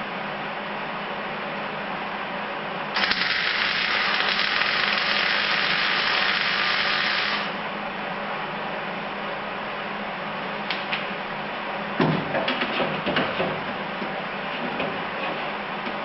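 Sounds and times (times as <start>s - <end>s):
welder crackling hiss: 3.0s - 7.6s.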